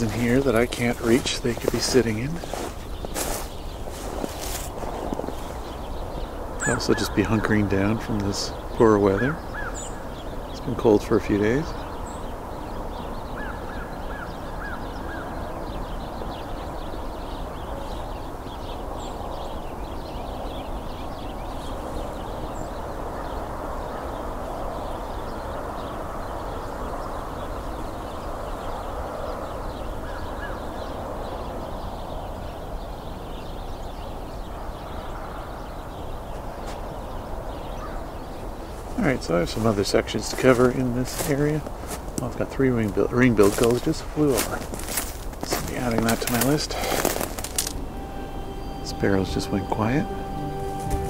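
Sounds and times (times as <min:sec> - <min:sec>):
flock of sparrows chirping: 0:00.0 - 0:51.0.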